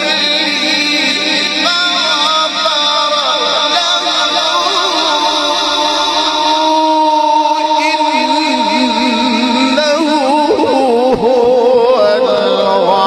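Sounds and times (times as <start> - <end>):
person reciting melodically: 0.0 - 13.0.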